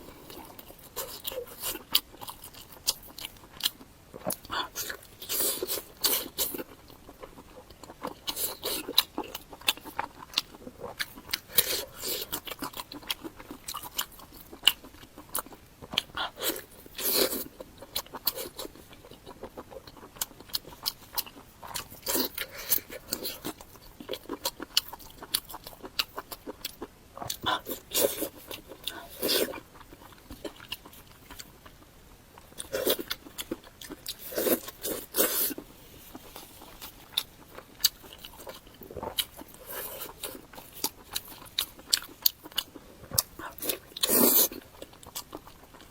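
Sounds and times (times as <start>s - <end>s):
person biting and chewing food: 32.4s - 45.9s.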